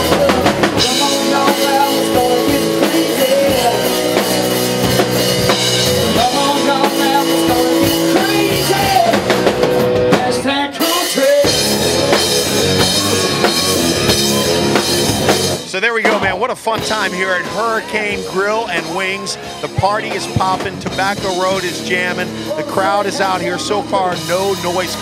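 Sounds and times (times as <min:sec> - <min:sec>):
country-rock band playing: 0:00.0 - 0:25.0
drum kit: 0:00.0 - 0:25.0.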